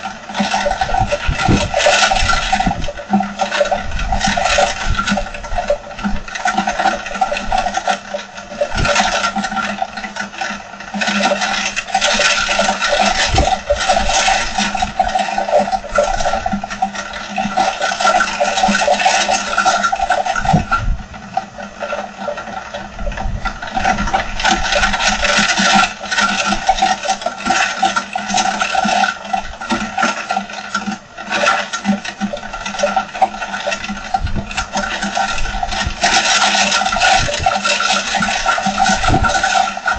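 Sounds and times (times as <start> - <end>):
wind: 0.0 - 39.9
heavy rain pouring: 11.2 - 20.9, 32.6 - 39.9.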